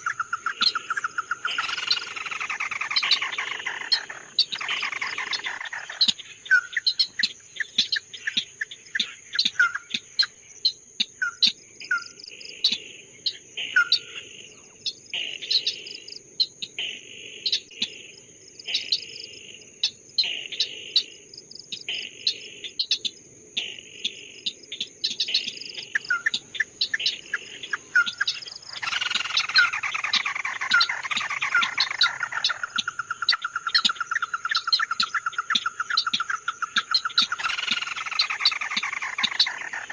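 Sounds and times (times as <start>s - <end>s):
high insect-like whine: 0.0s - 39.9s
songbird chirping and trilling: 0.0s - 39.9s.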